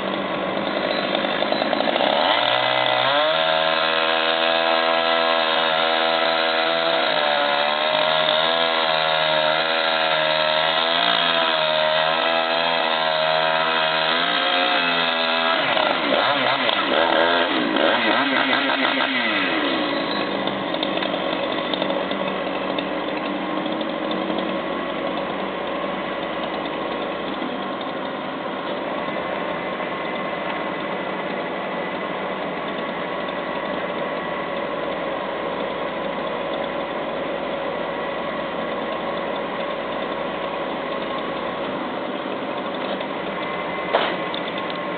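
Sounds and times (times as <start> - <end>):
chainsaw cutting: 0.0 - 33.9.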